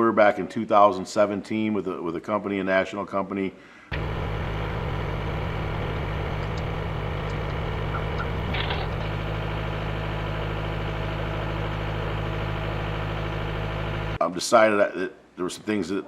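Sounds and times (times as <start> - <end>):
engine idling: 3.9 - 14.2.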